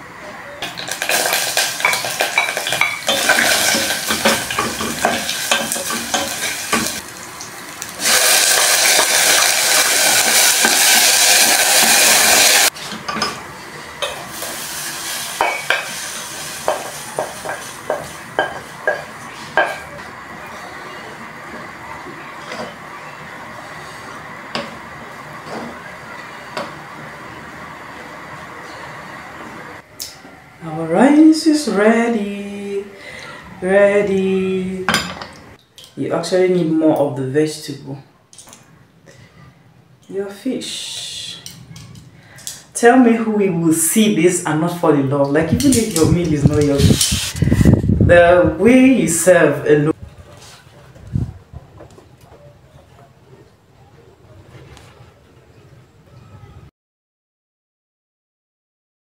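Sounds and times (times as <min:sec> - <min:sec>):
food sizzling in hot oil: 0:00.6 - 0:12.8, 0:14.0 - 0:19.8, 0:45.5 - 0:48.0.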